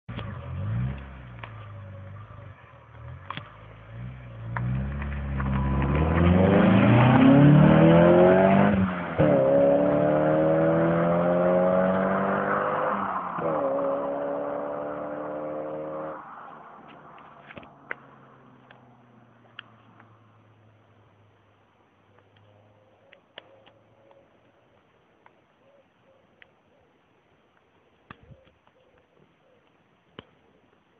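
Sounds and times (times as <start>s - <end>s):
car engine accelerating hard: 0.1s - 16.7s.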